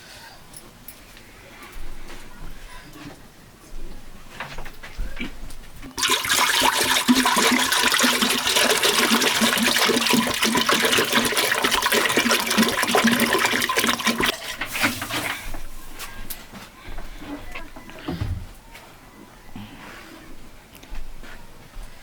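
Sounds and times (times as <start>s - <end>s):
water rushing: 5.9s - 15.6s.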